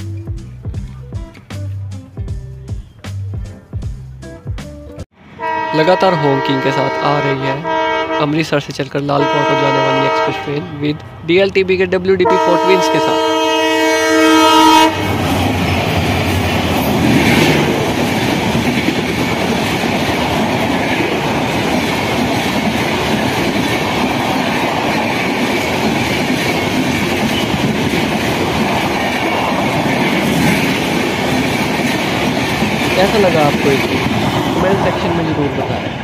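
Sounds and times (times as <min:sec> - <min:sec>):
train coaches rumbling: 0:05.2 - 0:36.0
train horn: 0:05.4 - 0:08.5, 0:09.1 - 0:10.8, 0:12.2 - 0:15.2
wheels clacking over rail joints: 0:15.2 - 0:36.0.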